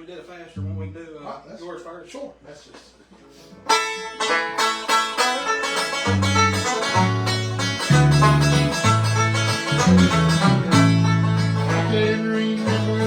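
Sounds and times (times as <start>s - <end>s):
bass: 0.5s - 1.2s, 4.5s - 13.0s
guitar: 3.2s - 13.0s
banjo picking fast rolls: 3.7s - 13.0s.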